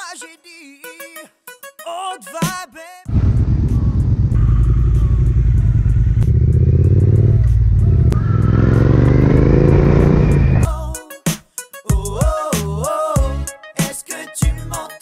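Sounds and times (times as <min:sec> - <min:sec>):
music: 0:00.0 - 0:08.8, 0:10.3 - 0:15.0
motorcycle engine accelerating: 0:03.1 - 0:10.6.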